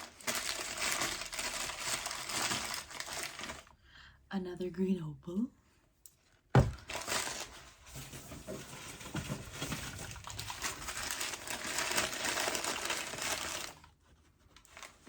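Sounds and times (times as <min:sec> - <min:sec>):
paper wrapping rustling: 0:00.0 - 0:03.7, 0:06.6 - 0:15.0
stone set down knock: 0:06.6 - 0:06.8.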